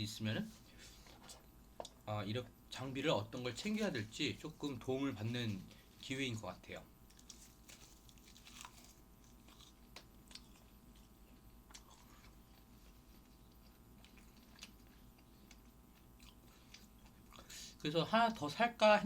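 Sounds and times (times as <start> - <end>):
faint steady hum: 0.0 - 19.0
chewing and mouth clicks: 7.1 - 17.5.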